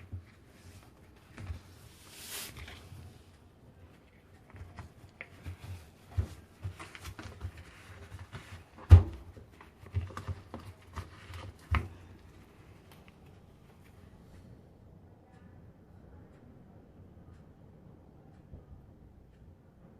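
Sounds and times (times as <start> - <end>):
thump: 8.8 - 9.3.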